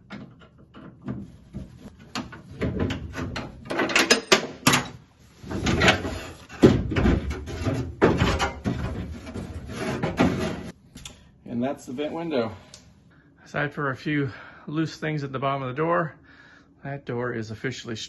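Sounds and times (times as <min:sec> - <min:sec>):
metal clunks and scraping: 0:00.0 - 0:10.8.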